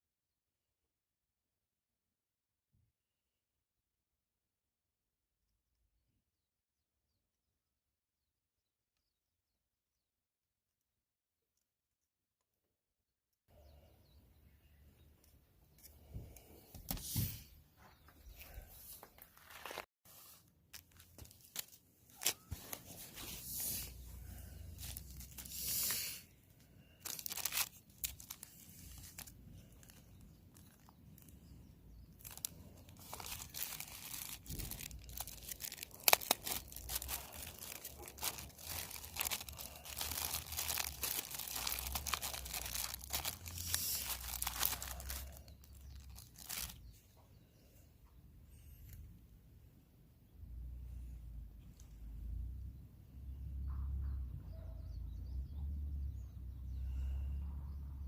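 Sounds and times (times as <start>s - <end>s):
tearing crunching and crinkling: 20.7s - 26.2s, 26.8s - 31.5s, 32.2s - 46.9s.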